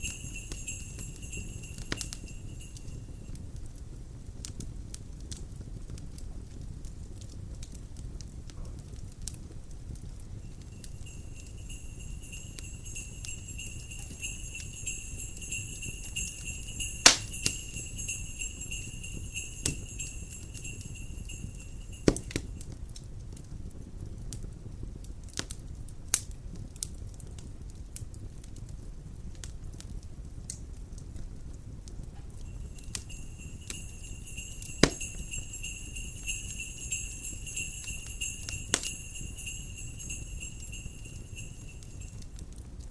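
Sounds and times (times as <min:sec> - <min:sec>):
sleigh bells shaking: 0:00.0 - 0:03.6, 0:10.2 - 0:22.7, 0:32.4 - 0:42.4
wood fire crackling: 0:00.0 - 0:42.9
low steady rumble: 0:07.8 - 0:23.2, 0:27.6 - 0:42.9.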